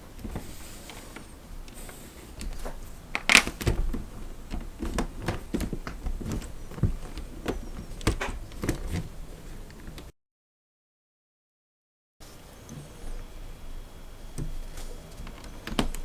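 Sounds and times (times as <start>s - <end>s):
irregular clicks and knocks: 2.4s - 9.1s.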